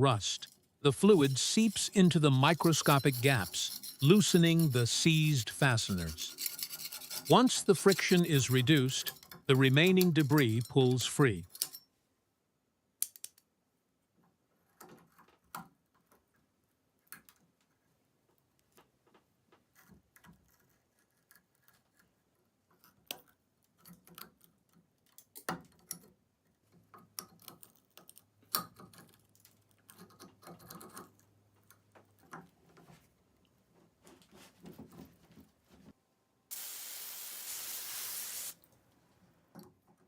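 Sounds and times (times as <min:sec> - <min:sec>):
metal on metal clicks and scrapes: 0:00.3 - 0:11.8.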